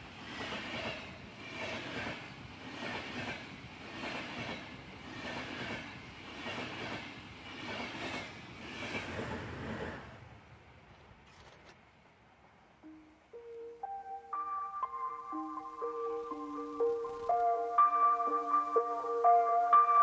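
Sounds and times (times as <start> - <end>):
train rolling rumble: 0.0 - 11.3.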